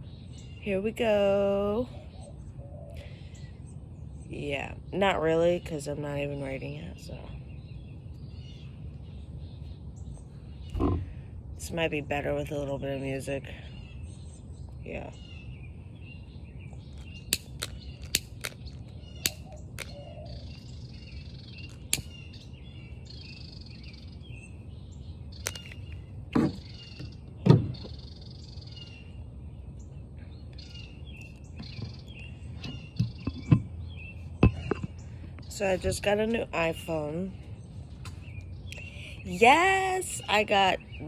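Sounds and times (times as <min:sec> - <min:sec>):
birds chirping: 0:00.0 - 0:41.0
low steady rumble: 0:00.0 - 0:41.0
sharp clicks: 0:17.1 - 0:20.0, 0:21.6 - 0:22.2, 0:25.4 - 0:26.0.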